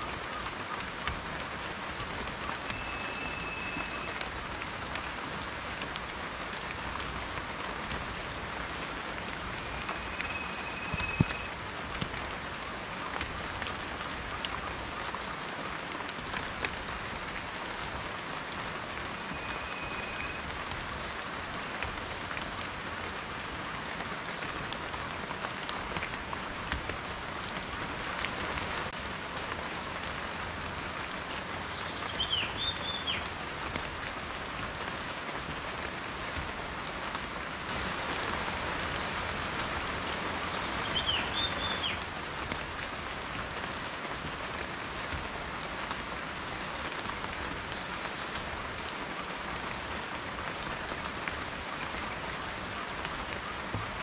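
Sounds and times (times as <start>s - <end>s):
rain falling: 0.0s - 54.0s
raindrops ticking: 0.0s - 54.0s
faint high whistles: 2.7s - 4.2s, 9.7s - 11.5s, 19.3s - 20.4s.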